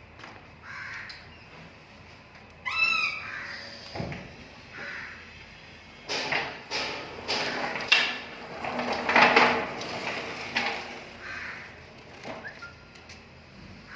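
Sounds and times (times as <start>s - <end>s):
pallet truck metallic clicks and clunks: 6.0s - 11.3s
pallet truck rattling clatter: 6.0s - 12.7s.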